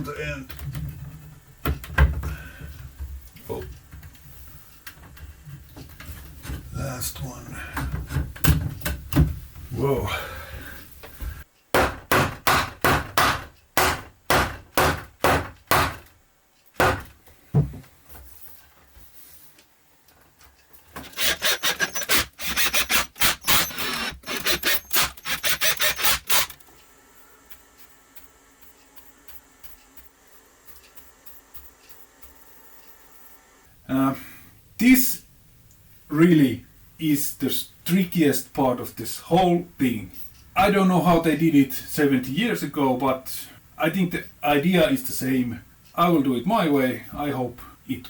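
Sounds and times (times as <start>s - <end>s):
hand tool rasping on wood: 21.0s - 26.6s.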